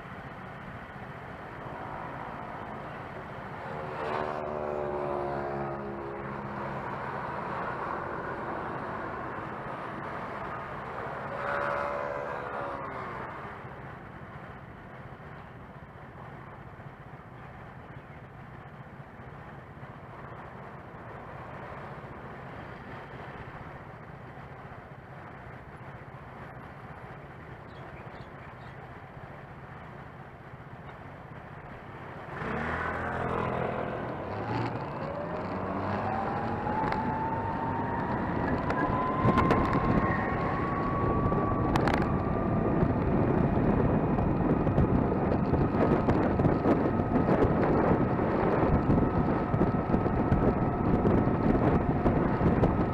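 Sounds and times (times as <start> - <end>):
low road hum: 0.0 - 52.9
electric scooter motor whine: 1.2 - 13.9, 32.3 - 52.9
wind noise on microphone: 32.3 - 52.9.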